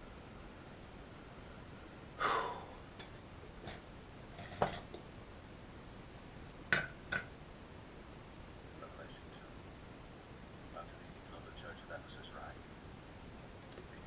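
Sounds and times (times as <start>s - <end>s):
breathy hiss: 1.4s - 2.9s.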